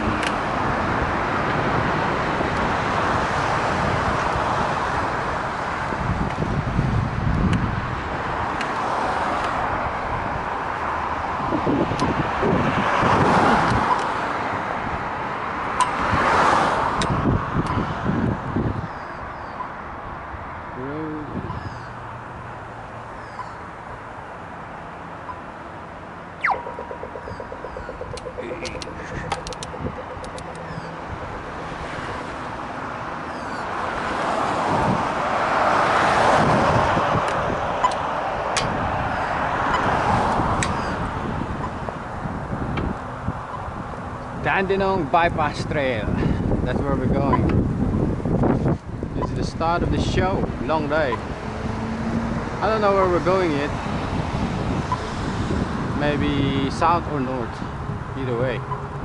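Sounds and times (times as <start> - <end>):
road noise: 0.0 - 59.0
wind rushing over microphone: 0.0 - 59.0
sharp clicks: 26.4 - 31.0.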